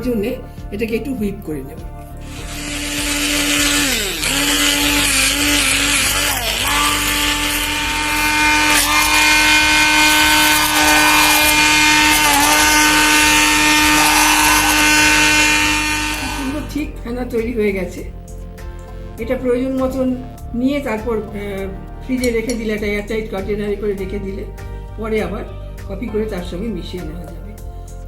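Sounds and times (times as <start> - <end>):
hand blender motor running: 2.2 - 16.8.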